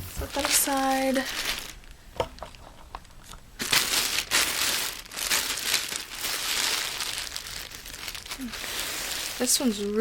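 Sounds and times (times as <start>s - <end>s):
packaging rustling and crinkling: 0.0s - 10.0s.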